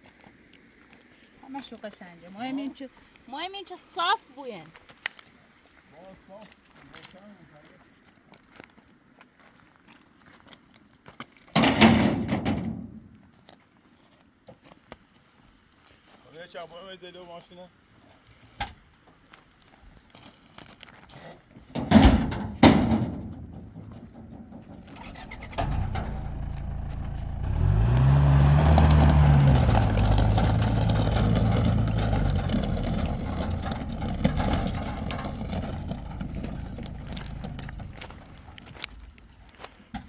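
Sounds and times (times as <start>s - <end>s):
heavy thumps: 22.0s - 38.7s
vehicle engine starting and revving: 24.9s - 38.8s.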